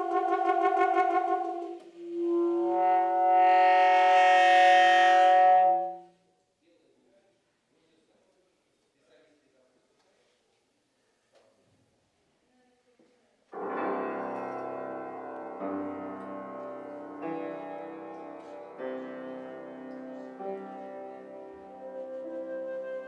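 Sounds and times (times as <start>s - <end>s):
piano playing sustained chords: 0.0s - 1.8s, 13.6s - 23.0s.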